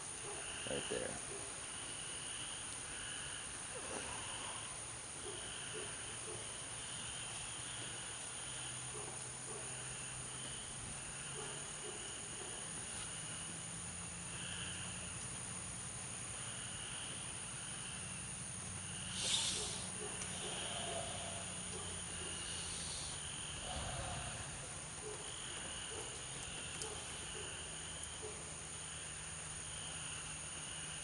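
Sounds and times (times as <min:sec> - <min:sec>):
insects chirping: 0:00.0 - 0:31.0
insects droning: 0:00.0 - 0:31.0.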